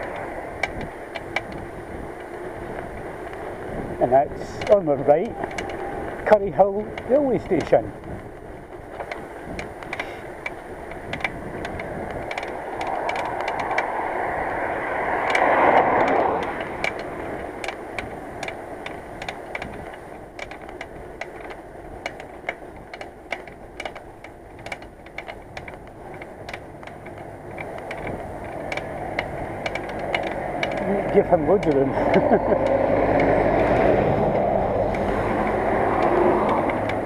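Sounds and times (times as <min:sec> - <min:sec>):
vehicle passing: 0:00.0 - 0:07.9, 0:11.8 - 0:19.1, 0:27.4 - 0:37.0
bicycle clicks and rattles: 0:00.0 - 0:37.0
bicycle tyres and wind rushing: 0:00.0 - 0:37.0.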